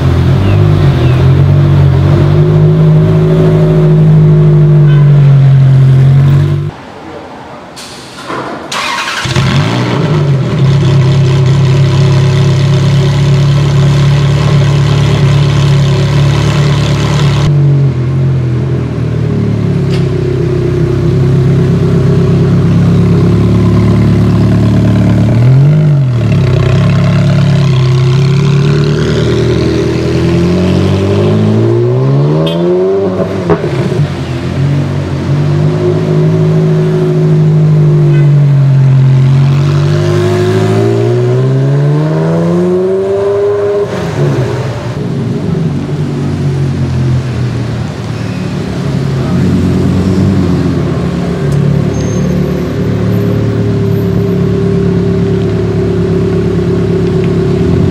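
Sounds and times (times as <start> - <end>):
sports car engine starting and idling: 7.8 - 57.9
engine revving: 8.7 - 17.5, 21.6 - 45.0.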